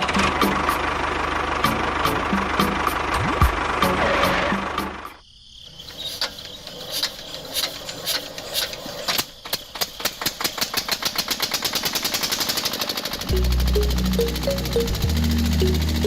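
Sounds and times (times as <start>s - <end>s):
sharp mechanical clicks: 6.2s - 16.0s.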